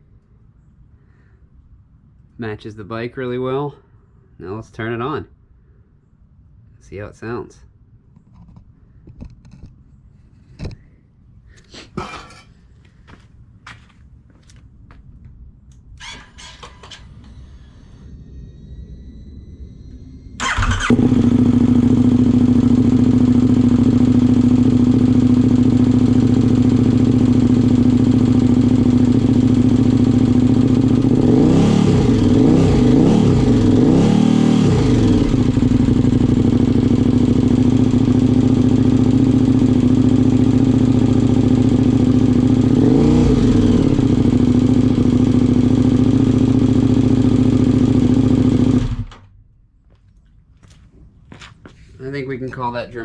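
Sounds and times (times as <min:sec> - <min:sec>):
motorcycle engine starting: 0:16.0 - 0:18.8, 0:19.9 - 0:49.5
motorcycle throttle blips: 0:20.4 - 0:34.0
motorcycle engine idling: 0:20.4 - 0:49.4.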